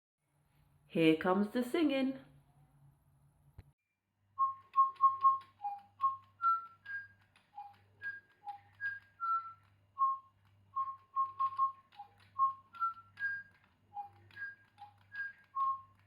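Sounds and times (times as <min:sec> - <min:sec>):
toy bird whistling a tune: 0:04.4 - 0:16.0.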